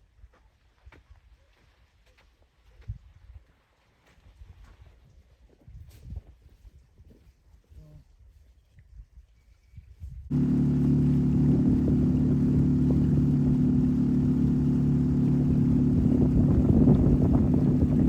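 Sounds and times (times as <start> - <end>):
boat motor running: 10.3 - 18.0.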